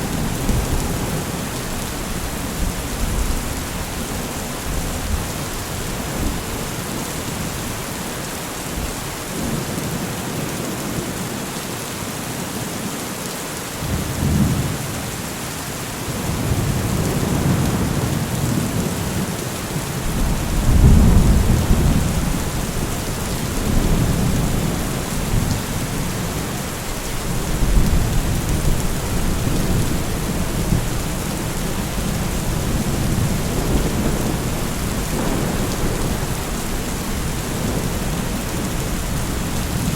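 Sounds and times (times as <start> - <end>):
heavy rain hiss: 0.0 - 13.6, 14.2 - 39.9
rolling thunder: 20.0 - 39.9.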